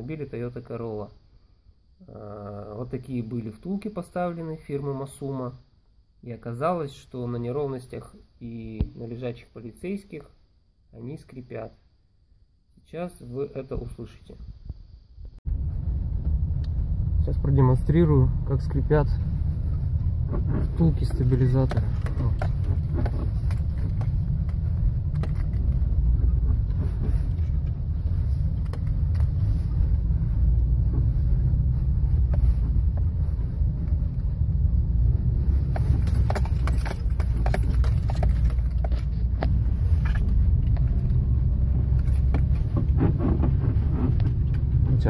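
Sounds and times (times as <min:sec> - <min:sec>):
car cabin road rumble: 0:15.4 - 0:45.0
rubbery suspension squeaks: 0:42.2 - 0:44.8.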